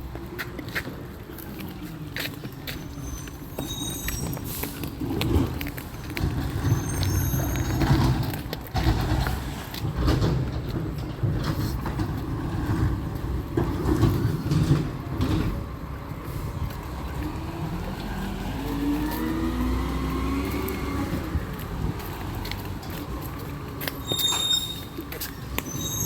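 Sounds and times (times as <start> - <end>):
knocks and clatter: 7.6 - 15.8.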